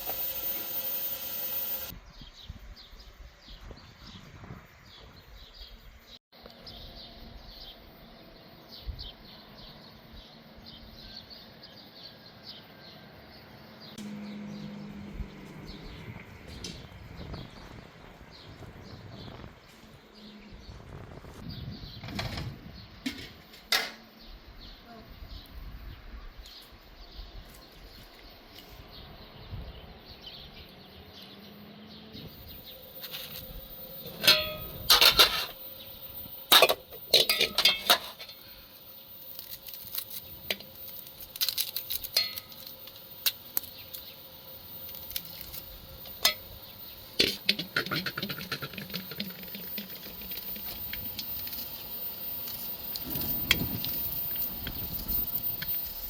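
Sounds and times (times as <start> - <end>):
utensils and dishes clinking: 33.0 - 35.6, 36.5 - 38.5, 47.2 - 51.7.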